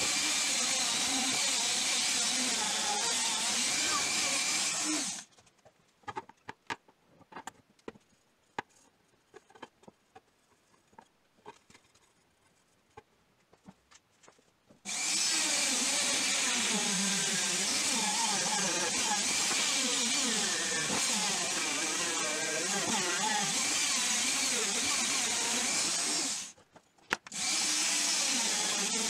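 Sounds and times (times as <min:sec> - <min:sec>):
rotary polishing tool running: 0:00.0 - 0:05.2, 0:14.9 - 0:26.5.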